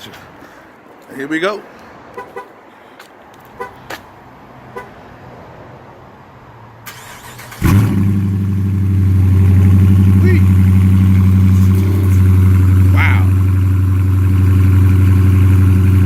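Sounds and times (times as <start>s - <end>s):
car engine fast idle: 6.9s - 9.4s.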